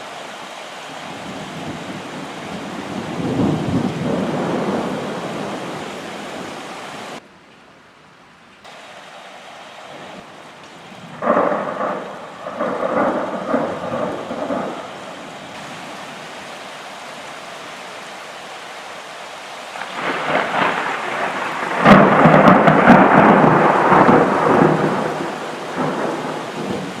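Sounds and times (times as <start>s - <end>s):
rain hissing: 0.0s - 27.0s
thunder rumbling: 0.9s - 7.2s, 9.9s - 16.6s, 19.7s - 27.0s.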